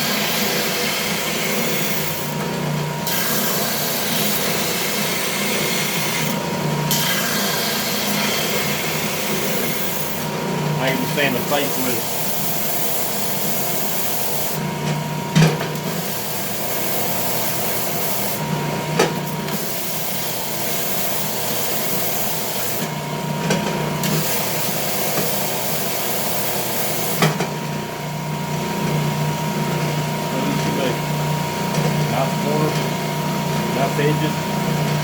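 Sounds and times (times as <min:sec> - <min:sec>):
belt sander sanding wood: 0:00.0 - 0:14.6, 0:15.9 - 0:18.4, 0:19.4 - 0:22.9, 0:24.0 - 0:27.2.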